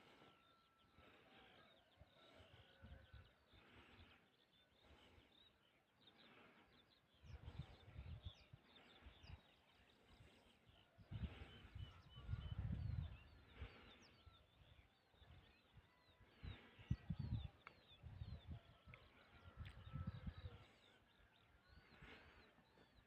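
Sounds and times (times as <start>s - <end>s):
faint birdsong: 0.0s - 23.0s.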